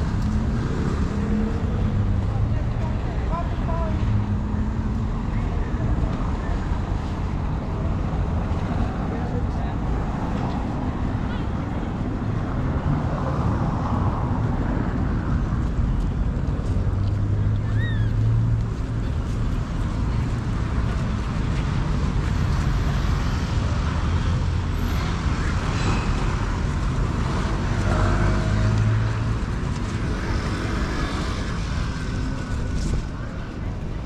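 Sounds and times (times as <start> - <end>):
traffic engine hum: 0.0 - 34.0.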